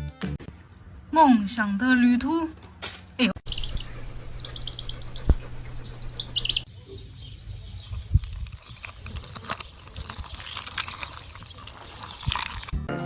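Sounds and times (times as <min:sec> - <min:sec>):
birds chirping in high trills: 0:03.4 - 0:09.9.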